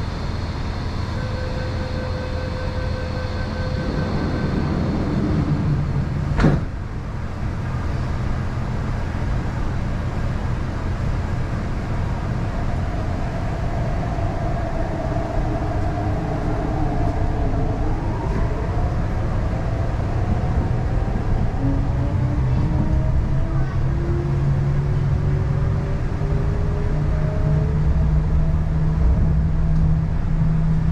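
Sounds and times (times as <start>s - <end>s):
train motor whine: 0.0s - 6.8s
train wheels rumbling on track: 0.0s - 30.9s.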